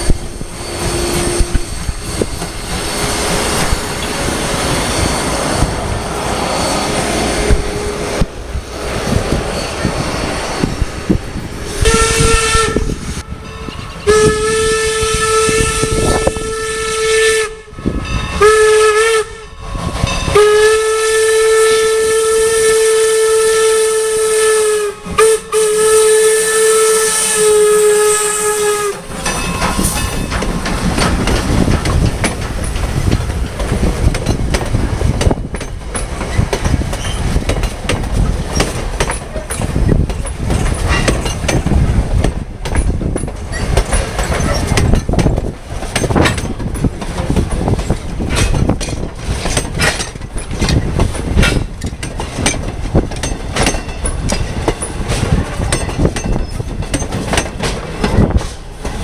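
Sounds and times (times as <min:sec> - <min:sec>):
wind buffeting on microphone: 0:00.0 - 0:18.7, 0:29.1 - 0:59.0
steam locomotive whistle blasts: 0:11.7 - 0:30.3.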